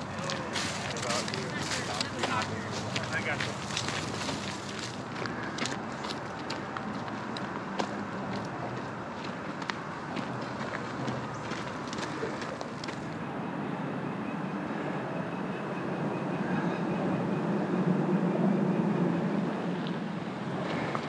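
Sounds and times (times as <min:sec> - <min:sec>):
passenger train passing: 0:13.2 - 0:21.0.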